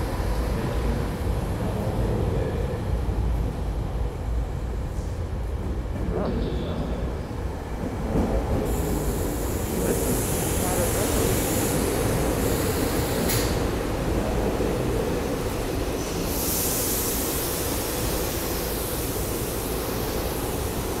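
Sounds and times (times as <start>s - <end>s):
electric train rumble and hum: 0.0s - 21.0s
train hiss: 8.3s - 21.0s.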